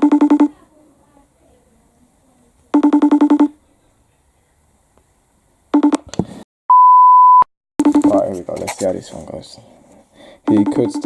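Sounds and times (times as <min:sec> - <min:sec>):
phone call ringing tone: 0:07.8 - 0:08.4, 0:10.4 - 0:11.0.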